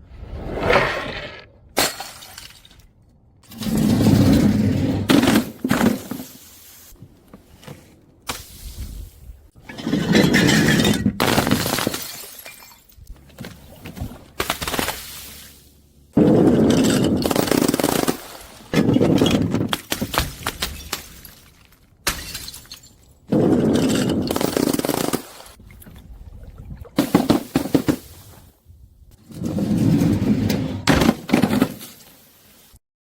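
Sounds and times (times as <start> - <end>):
glass bottles crushed and breaking: 1.8 - 2.9, 9.6 - 13.1, 16.2 - 25.2.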